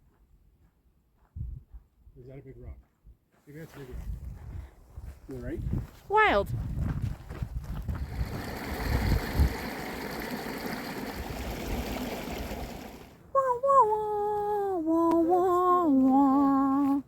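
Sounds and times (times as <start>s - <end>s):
mountain stream rushing: 8.2s - 13.2s
person humming a tune: 13.3s - 17.0s.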